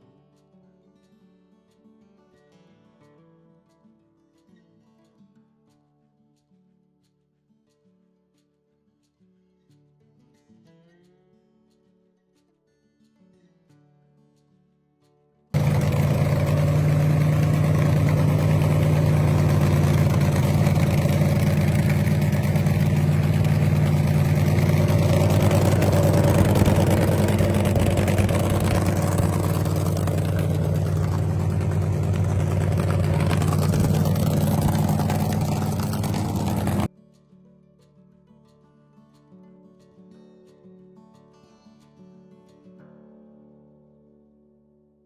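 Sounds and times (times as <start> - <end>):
car engine idling: 15.6 - 36.9.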